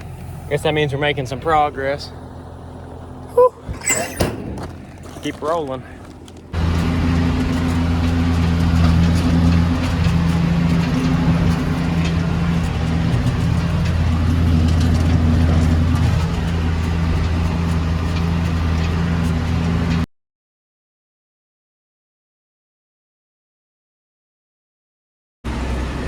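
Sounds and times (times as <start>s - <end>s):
diesel tractor engine running: 0.0s - 20.1s, 25.5s - 26.0s.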